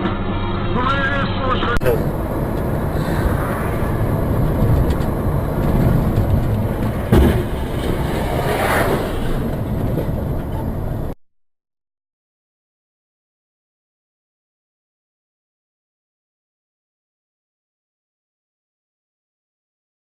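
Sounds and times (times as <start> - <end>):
vehicle driving: 0.0 - 11.2
sharp thump: 4.6 - 8.1.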